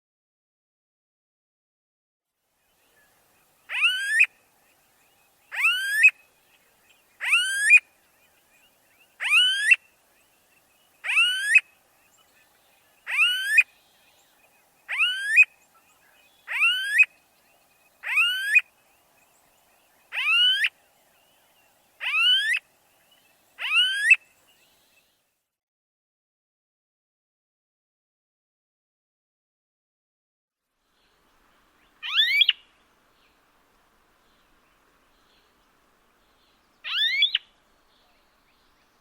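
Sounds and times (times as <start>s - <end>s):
upward sweeping bird call: 16.4s - 17.1s, 36.8s - 37.5s.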